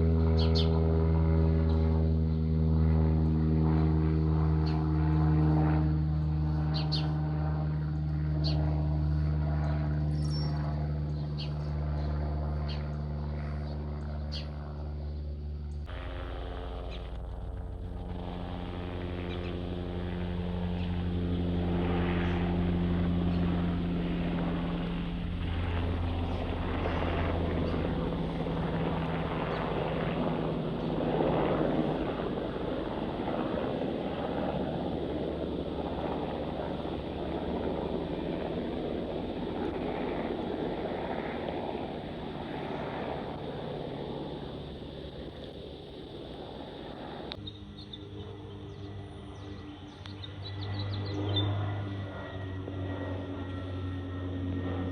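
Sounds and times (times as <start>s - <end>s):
aircraft engine and propeller drone: 0.0s - 54.9s
aircraft rushing noise: 15.7s - 47.4s.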